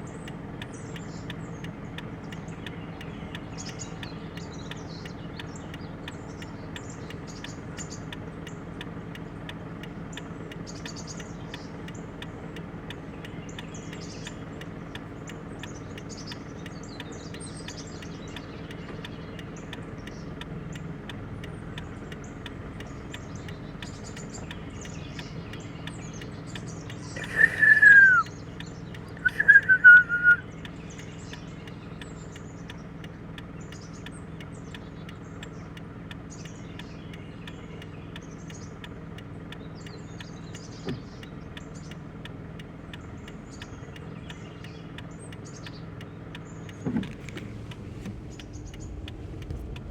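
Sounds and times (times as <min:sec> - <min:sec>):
small birds chirping: 0:00.0 - 0:49.9
peafowl calling: 0:27.1 - 0:28.3, 0:29.2 - 0:30.4
steady low hum: 0:46.8 - 0:49.9.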